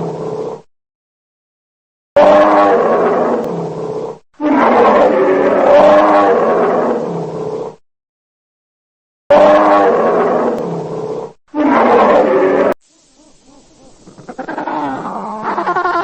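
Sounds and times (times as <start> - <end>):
large animal roaring: 2.2 - 7.8, 9.3 - 12.8, 14.1 - 16.0.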